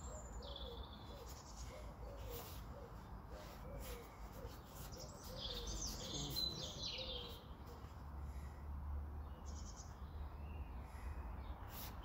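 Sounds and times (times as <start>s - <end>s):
small bird chirping and trilling: 3.8s - 7.6s.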